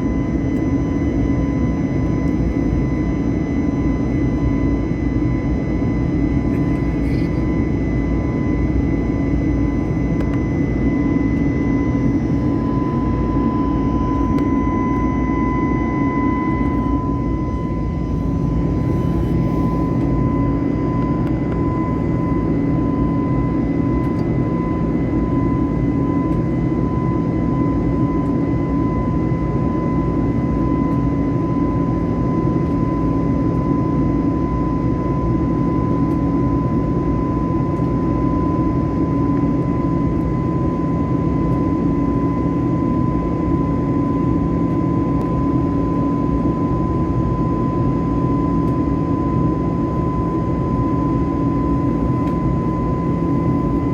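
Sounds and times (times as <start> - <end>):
jet engine and airflow rush: 0.0 - 28.7
constant high whine: 0.0 - 53.9.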